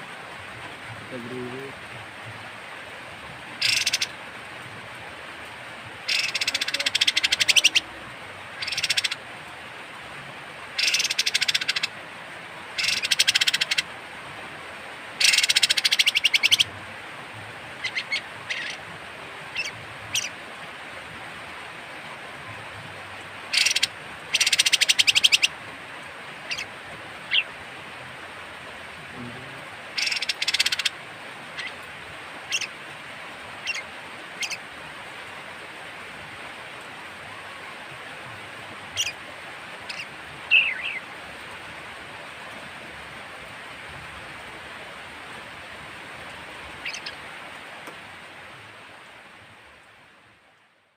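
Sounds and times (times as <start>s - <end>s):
bird giving harsh rasping calls: 3.6s - 4.1s, 6.1s - 7.8s, 8.6s - 9.2s, 10.8s - 11.9s, 12.8s - 13.8s, 15.2s - 16.6s, 23.5s - 25.5s, 30.0s - 30.9s, 39.9s - 41.0s.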